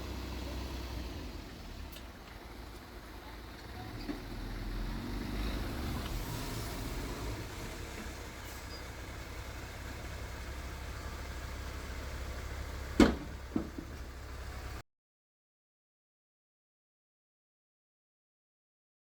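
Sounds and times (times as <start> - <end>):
heavy diesel engine rumbling: 0.0 - 14.8
sharp knock: 13.0 - 13.9.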